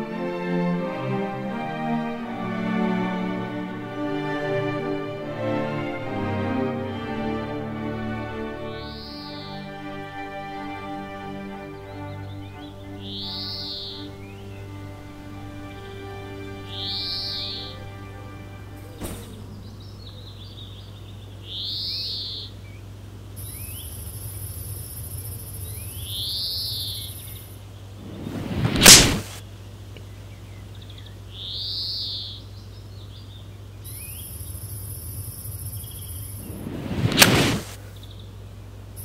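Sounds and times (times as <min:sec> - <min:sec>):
bird's arched cry: 0:08.8 - 0:09.6, 0:12.6 - 0:14.5, 0:16.7 - 0:17.8
steady low hum: 0:13.9 - 0:21.5, 0:22.5 - 0:31.3, 0:32.7 - 0:39.0
high hiss: 0:23.4 - 0:29.5, 0:33.9 - 0:37.9
whoosh: 0:28.0 - 0:29.4, 0:36.3 - 0:37.8.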